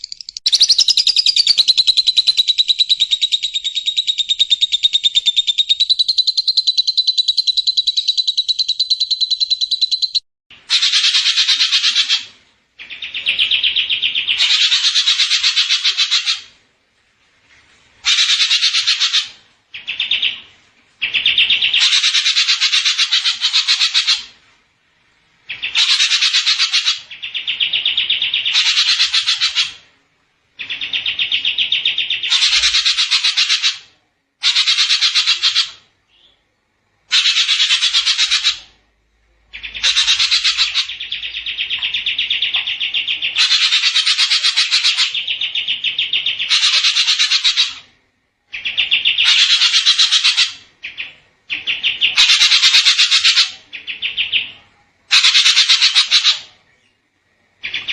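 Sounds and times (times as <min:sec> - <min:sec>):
songbird chirping in trills: 0:00.0 - 0:10.3, 0:25.4 - 0:29.9, 0:34.5 - 0:57.9.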